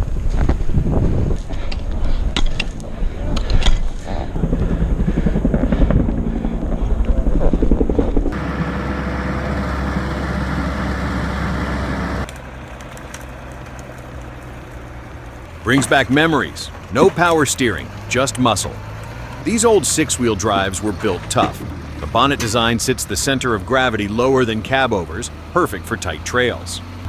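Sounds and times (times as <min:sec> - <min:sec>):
heavy vehicle engines running: 0:00.0 - 0:27.0
knocks and clatter: 0:12.2 - 0:23.0.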